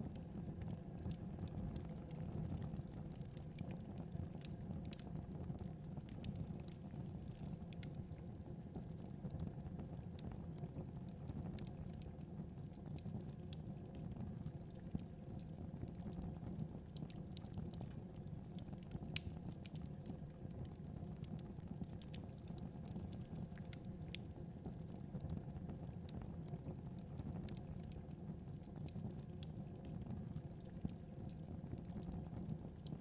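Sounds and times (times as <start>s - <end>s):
fire crackles and pops: 0.0s - 33.0s
wood fire rumbling: 0.1s - 8.4s, 16.3s - 25.0s.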